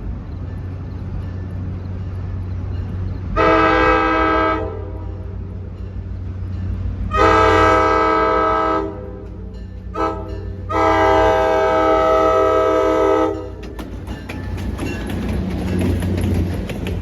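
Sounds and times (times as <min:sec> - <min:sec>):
train rumble: 0:00.0 - 0:17.0
locomotive air horn: 0:03.4 - 0:05.3, 0:07.1 - 0:13.6.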